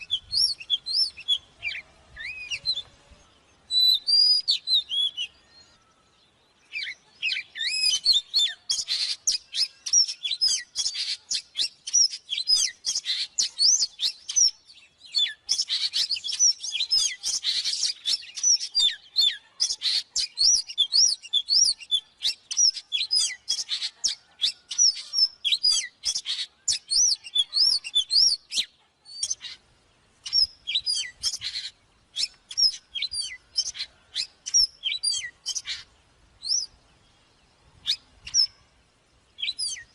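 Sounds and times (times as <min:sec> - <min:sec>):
bird singing whistles and chirps: 0:00.0 - 0:29.6, 0:30.2 - 0:36.8, 0:37.5 - 0:38.7, 0:39.4 - 0:39.9.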